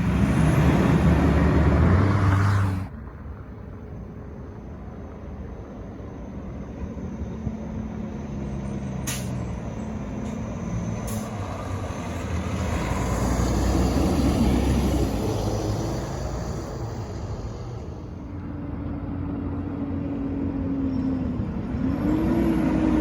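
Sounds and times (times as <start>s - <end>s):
garbage truck engine passing: 0.0s - 3.0s, 8.0s - 23.0s.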